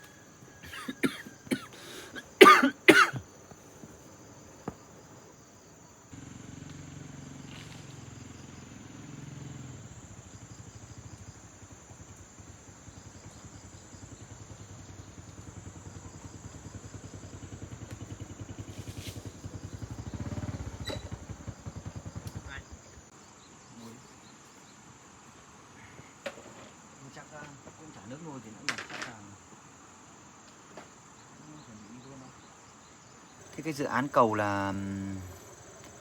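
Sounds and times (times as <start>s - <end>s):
person coughing: 0.6s - 3.2s
small motorcycle engine running: 6.1s - 23.1s, 33.5s - 36.0s.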